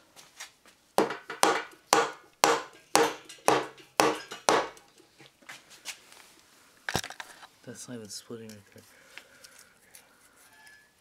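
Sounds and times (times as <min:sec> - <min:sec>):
hammer blows on metal engine: 0:01.0 - 0:04.8.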